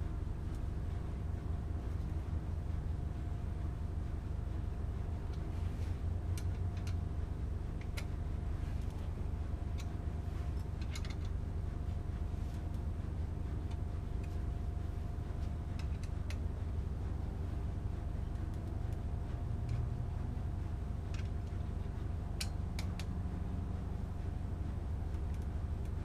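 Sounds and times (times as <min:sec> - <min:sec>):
low background hum: 0:00.0 - 0:26.0
metallic clicks of hand tools: 0:10.8 - 0:11.3, 0:15.8 - 0:16.4.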